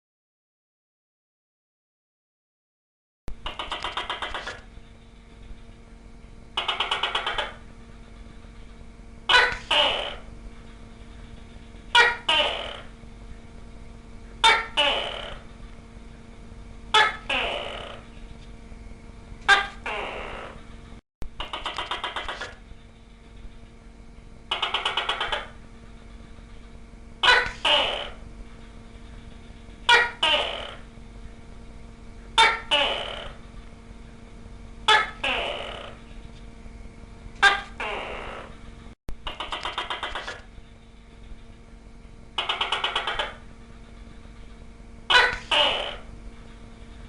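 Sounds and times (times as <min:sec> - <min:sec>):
gecko two-part call: 0:03.4 - 0:04.7, 0:06.6 - 0:07.6, 0:09.3 - 0:10.3, 0:11.9 - 0:12.9, 0:14.4 - 0:15.5, 0:16.9 - 0:18.1, 0:19.5 - 0:20.6, 0:24.5 - 0:25.6, 0:27.2 - 0:28.2, 0:29.9 - 0:30.9, 0:32.4 - 0:33.4, 0:34.8 - 0:36.0, 0:37.4 - 0:38.6, 0:42.4 - 0:43.5, 0:45.1 - 0:46.1
gecko rattling call: 0:03.4 - 0:05.0, 0:06.6 - 0:07.6, 0:09.3 - 0:12.9, 0:14.4 - 0:15.5, 0:16.9 - 0:18.2, 0:21.4 - 0:23.5, 0:24.5 - 0:25.6, 0:27.2 - 0:29.3, 0:29.9 - 0:30.9, 0:32.4 - 0:33.5, 0:34.9 - 0:36.1, 0:37.4 - 0:38.7, 0:39.3 - 0:41.5, 0:42.4 - 0:44.5, 0:45.1 - 0:47.0
gecko call syllable: 0:09.3 - 0:10.3, 0:29.9 - 0:30.8, 0:42.4 - 0:43.4, 0:45.1 - 0:46.1.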